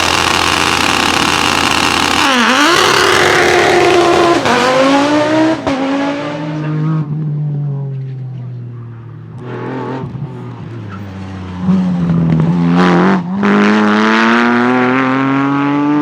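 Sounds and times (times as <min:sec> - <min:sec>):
sharp exhaust crack: 0:00.0 - 0:06.2
rally car engine at full throttle: 0:00.0 - 0:16.0.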